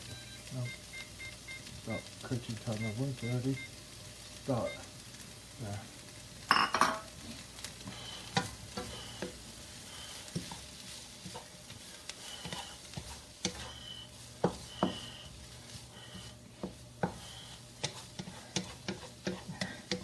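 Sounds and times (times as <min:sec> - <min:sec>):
onions sizzling in hot oil: 0:00.0 - 0:20.0
utensil knocking against pan: 0:14.4 - 0:15.1, 0:17.8 - 0:20.0.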